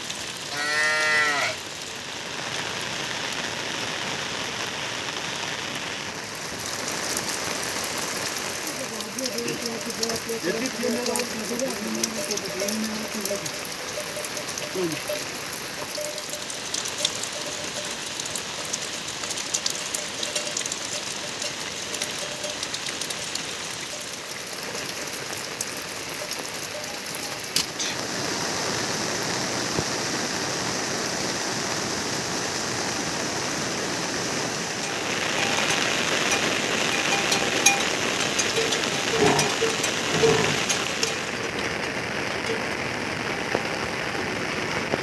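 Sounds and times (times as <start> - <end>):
rain falling: 0.0 - 45.0
sharp drip ticks: 6.4 - 27.8, 34.8 - 42.6.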